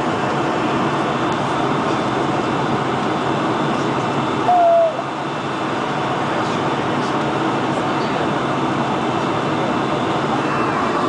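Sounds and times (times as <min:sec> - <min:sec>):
airplane cabin noise: 0:00.0 - 0:11.0.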